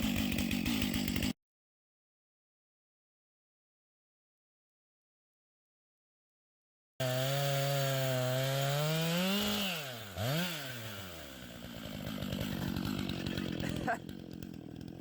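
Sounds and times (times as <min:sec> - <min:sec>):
chainsaw cutting log: 0:00.0 - 0:01.4, 0:07.0 - 0:15.0.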